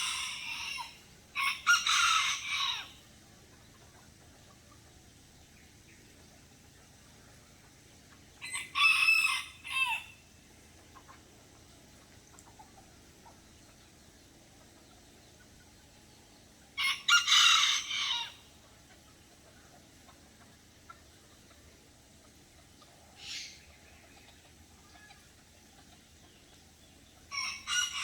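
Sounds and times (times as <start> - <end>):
rooster crowing: 0.0 - 3.0, 8.4 - 10.2, 16.8 - 18.5, 27.3 - 28.0.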